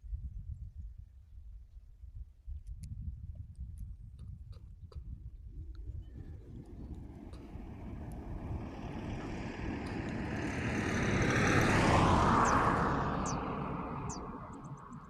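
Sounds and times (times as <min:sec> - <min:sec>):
vehicle passing by: 0:06.1 - 0:15.0.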